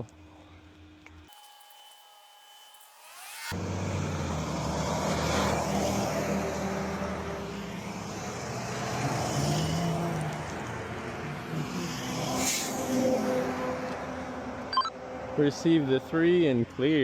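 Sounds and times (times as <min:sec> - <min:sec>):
tyre and road noise: 0:03.5 - 0:17.0
heavy trucks driving past: 0:03.6 - 0:16.1.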